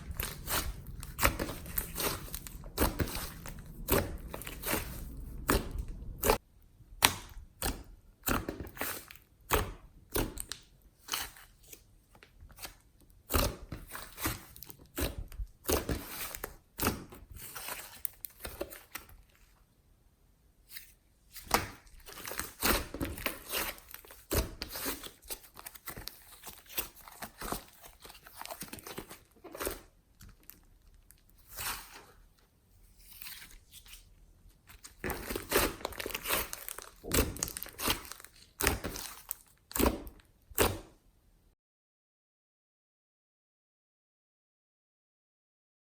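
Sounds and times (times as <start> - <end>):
sticky slime popping and crackling: 0.0 - 6.4, 34.8 - 40.8.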